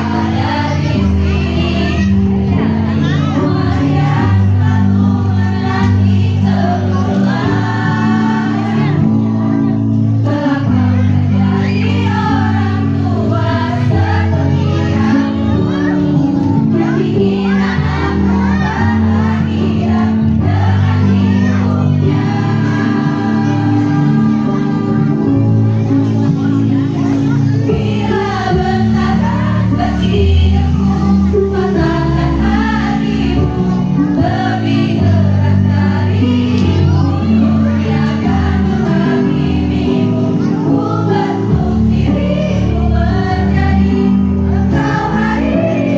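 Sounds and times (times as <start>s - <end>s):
women's choir singing: 0.0s - 45.9s.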